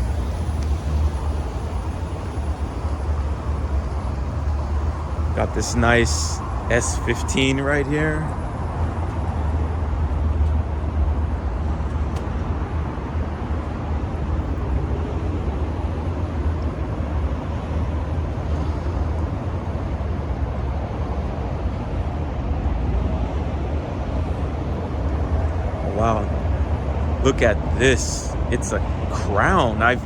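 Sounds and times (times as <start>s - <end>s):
traffic rumble: 0.0s - 30.0s.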